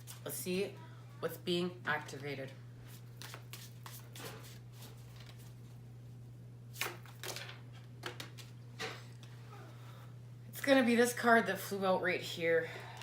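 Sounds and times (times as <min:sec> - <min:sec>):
cards being shuffled: 0:02.9 - 0:05.5.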